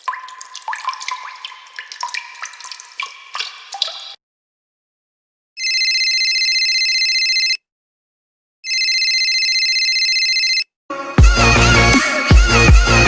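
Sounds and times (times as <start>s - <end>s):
electronic telephone ringer trilling: 5.6s - 7.6s
electronic music with heavy beat: 11.2s - 13.0s.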